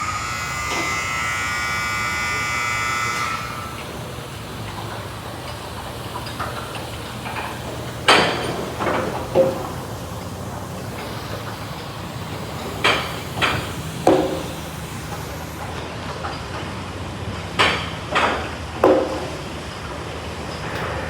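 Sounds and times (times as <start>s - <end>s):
low hum: 0.0s - 15.8s
high-pitched machine whine: 0.0s - 17.8s.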